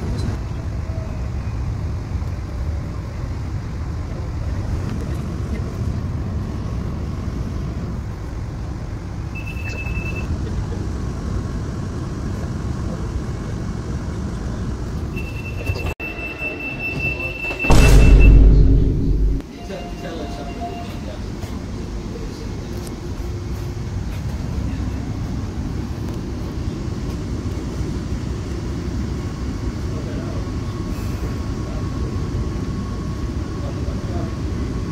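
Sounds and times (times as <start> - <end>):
train rumbling on rails: 0.0 - 34.9
short high-pitched beep: 9.4 - 10.3, 15.2 - 21.1
long high tone: 15.2 - 21.3.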